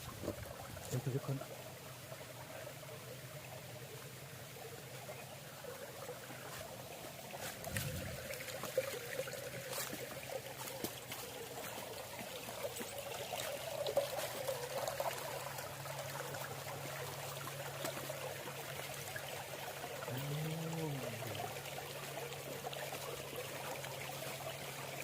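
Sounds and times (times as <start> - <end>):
stream water trickling over rock: 0.0 - 25.0.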